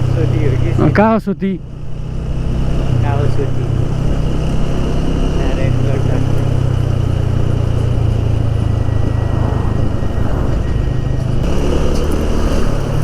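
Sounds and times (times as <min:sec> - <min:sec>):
motorcycle engine humming: 0:00.0 - 0:13.0
road noise: 0:00.0 - 0:13.0
rushing wind: 0:01.7 - 0:13.0.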